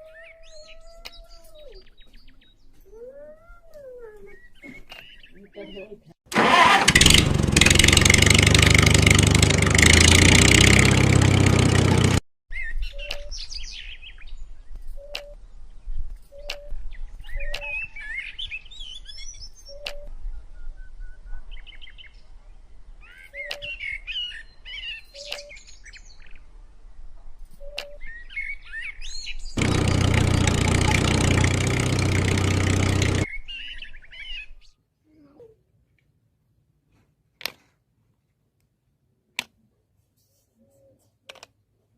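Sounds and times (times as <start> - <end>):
small birds chirping: 0.0 - 6.2, 12.5 - 26.4.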